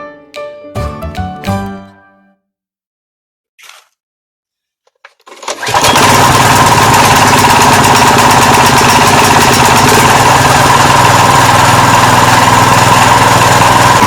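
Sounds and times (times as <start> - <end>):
small engine starting and running: 5.2 - 14.0.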